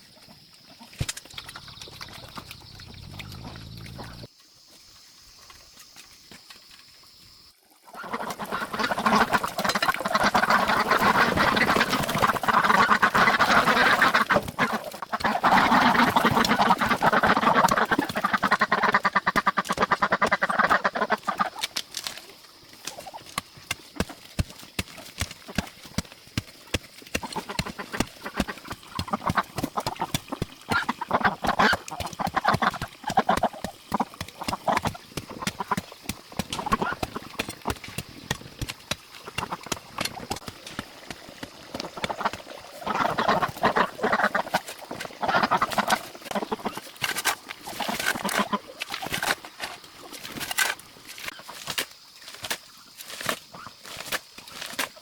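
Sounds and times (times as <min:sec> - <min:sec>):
ducks quacking: 0:07.9 - 0:21.6, 0:27.2 - 0:37.8, 0:41.8 - 0:46.9, 0:47.7 - 0:48.7.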